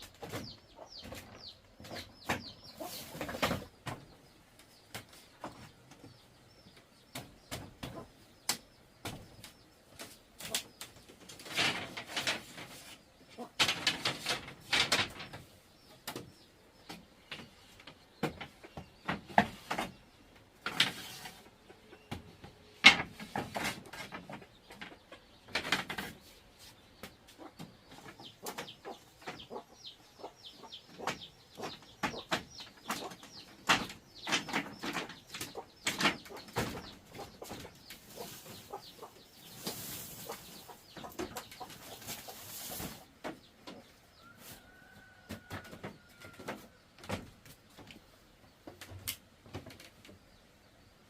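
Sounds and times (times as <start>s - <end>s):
chickens chirping: 0.0s - 51.0s
knocks and clatter: 13.6s - 15.5s, 31.0s - 37.8s.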